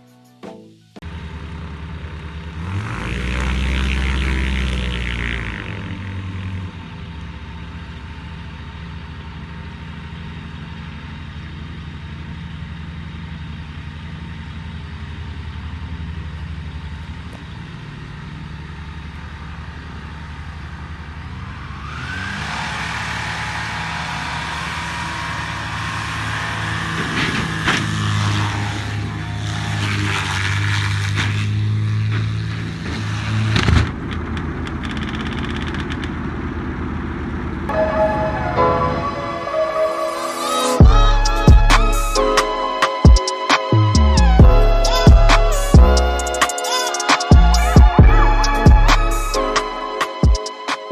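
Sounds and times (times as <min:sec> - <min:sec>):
engine running with low hum: 0:01.0 - 0:38.6, 0:40.8 - 0:46.6, 0:47.3 - 0:50.2
rising whine: 0:37.7 - 0:50.9.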